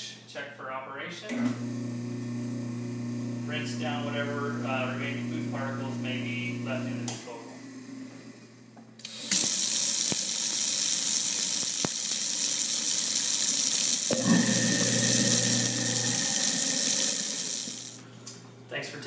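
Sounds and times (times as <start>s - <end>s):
faucet water running into sink: 9.0s - 18.0s.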